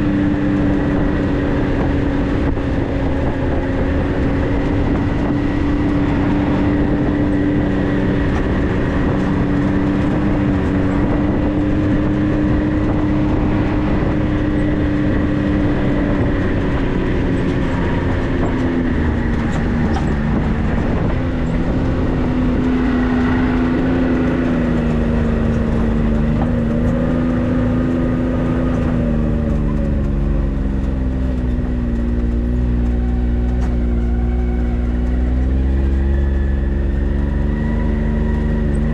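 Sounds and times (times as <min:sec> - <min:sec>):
off-road vehicle engine running: 0:00.0 - 0:38.9.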